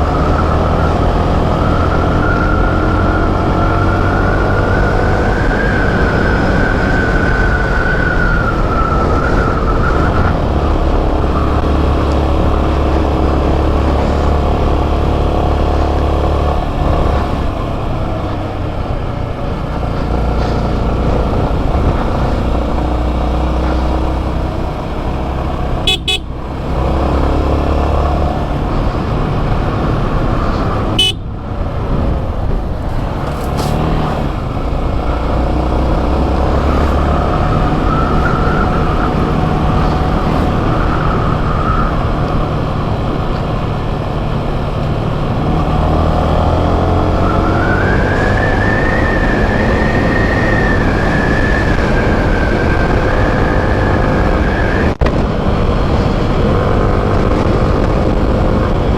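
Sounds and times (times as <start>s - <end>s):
road noise: 0.0s - 58.9s
motorcycle engine running: 10.4s - 33.7s.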